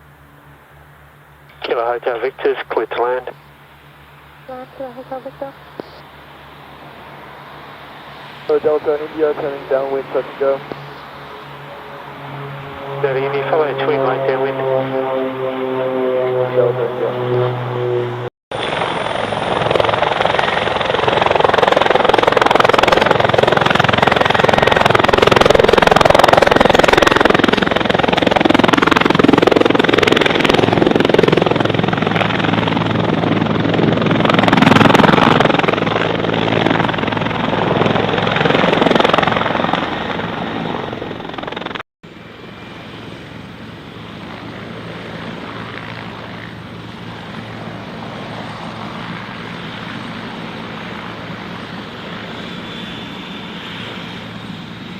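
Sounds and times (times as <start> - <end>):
quieter steady engine: 0.0 - 28.7
propeller aircraft engine passing: 0.0 - 54.9.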